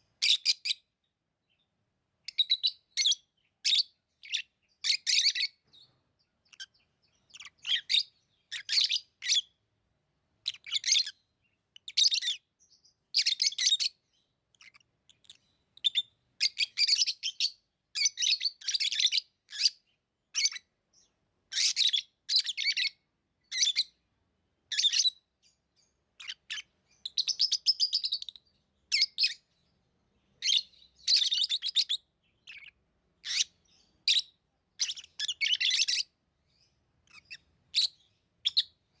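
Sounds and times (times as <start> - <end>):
lovebirds chirping: 0.0 - 39.0.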